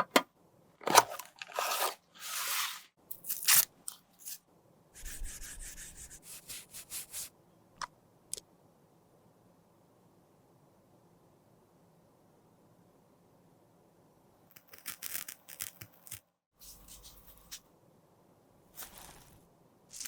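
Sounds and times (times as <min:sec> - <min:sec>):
powder being scraped: 0:18.8 - 0:20.0.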